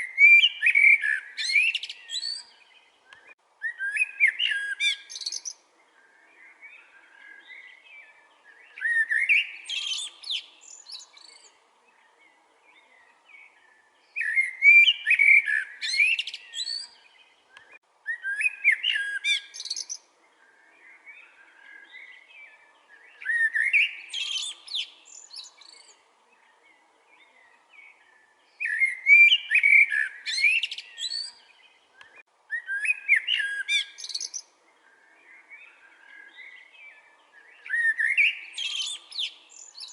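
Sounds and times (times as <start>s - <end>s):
songbird warbling: 0.0s - 26.6s, 27.2s - 39.9s.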